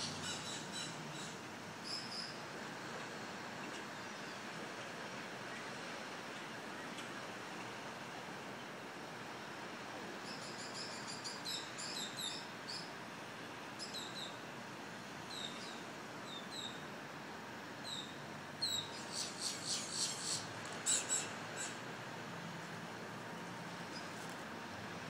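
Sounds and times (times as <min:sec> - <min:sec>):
steady background hiss: 0:00.0 - 0:25.0
small birds chirping: 0:10.3 - 0:12.9, 0:17.8 - 0:21.8.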